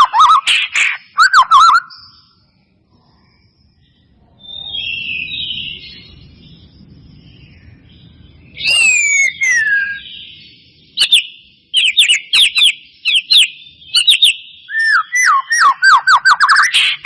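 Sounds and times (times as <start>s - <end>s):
bird whistled song with clicks: 0.0s - 2.1s, 8.5s - 10.4s, 11.0s - 17.0s
soft rapid bird twittering: 0.0s - 17.0s.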